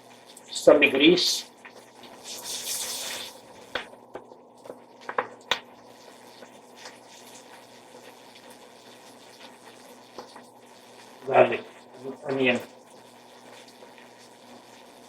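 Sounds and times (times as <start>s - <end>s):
chicken sizzling in oil: 0.0s - 15.0s.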